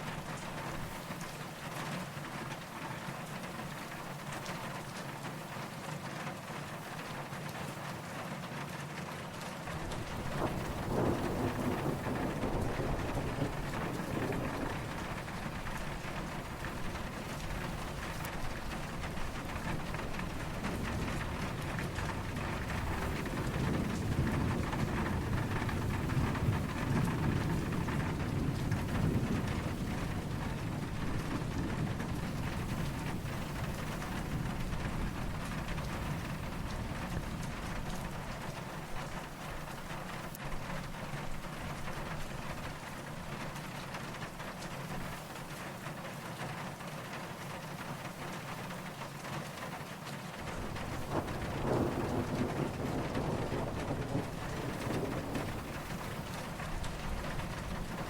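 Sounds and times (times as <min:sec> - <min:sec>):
steady rain falling: 0:00.0 - 0:58.0
distant thunder rumble: 0:09.7 - 0:45.2, 0:50.4 - 0:58.0.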